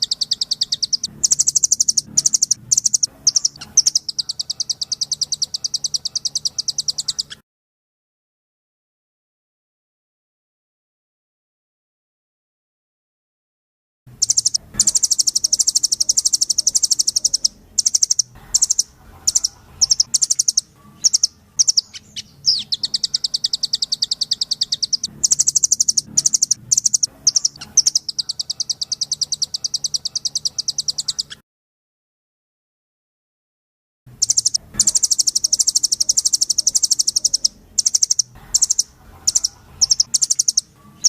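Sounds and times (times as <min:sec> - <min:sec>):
faint low hum: 0:00.0 - 0:07.4, 0:14.1 - 0:31.4, 0:34.1 - 0:41.0
nuthatch singing rapid trills: 0:00.0 - 0:07.4, 0:14.2 - 0:31.4, 0:34.2 - 0:41.0.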